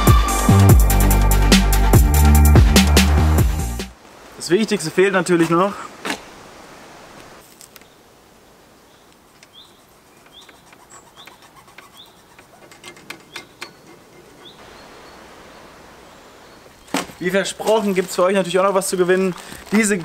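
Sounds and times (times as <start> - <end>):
bird chirping: 7.7 - 18.1.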